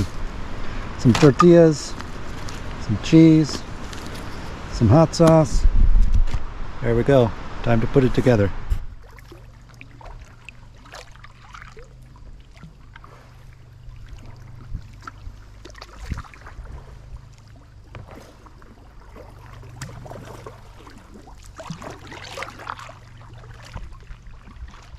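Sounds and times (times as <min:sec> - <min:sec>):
river water flowing: 0:08.9 - 0:24.9.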